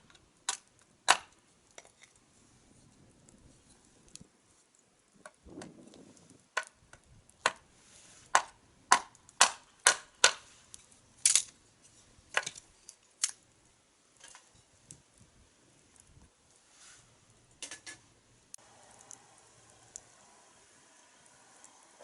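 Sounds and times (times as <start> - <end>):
campfire wood crackling and popping: 0.0 - 22.0.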